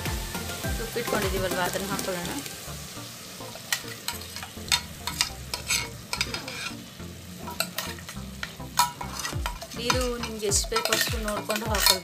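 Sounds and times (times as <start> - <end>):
faint sizzle: 0.0 - 12.0
sharp pops and crackles: 3.4 - 12.0.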